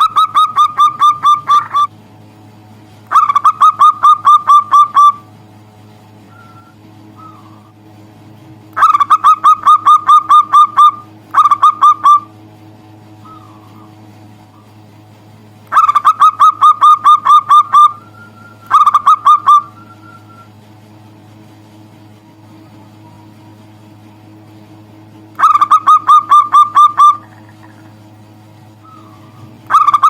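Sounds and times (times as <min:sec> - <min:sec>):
dove cooing: 0:00.0 - 0:01.9, 0:03.1 - 0:05.3, 0:06.3 - 0:07.8, 0:08.8 - 0:12.3, 0:13.2 - 0:14.8, 0:15.7 - 0:20.6, 0:25.4 - 0:28.1, 0:28.8 - 0:30.0.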